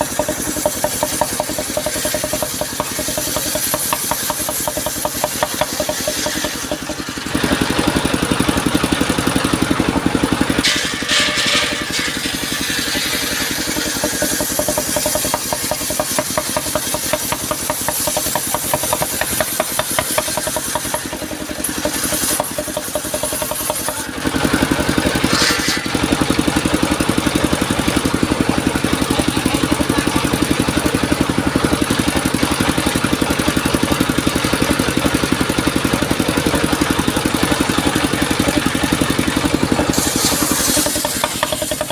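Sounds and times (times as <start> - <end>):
engine running steadily: 0.0 - 41.9.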